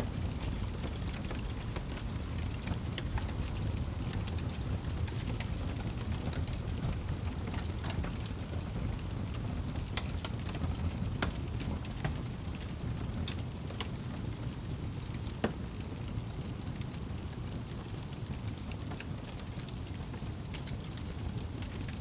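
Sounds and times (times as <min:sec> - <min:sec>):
wood fire crackling: 0:00.0 - 0:22.0
sharp pops and snaps of fire: 0:00.1 - 0:22.0.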